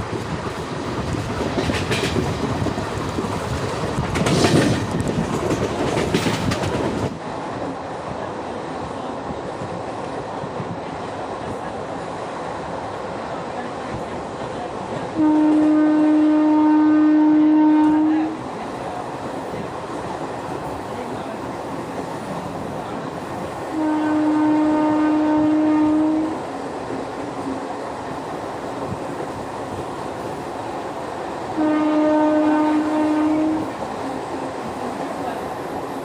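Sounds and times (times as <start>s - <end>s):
moving train rumble and rattle: 0.0s - 36.0s
train horn blasts: 15.2s - 18.4s, 23.7s - 26.4s, 31.6s - 33.8s.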